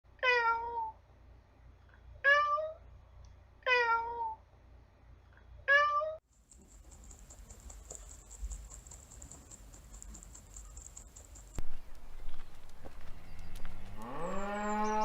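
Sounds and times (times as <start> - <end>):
cat meowing: 3.7 - 4.4.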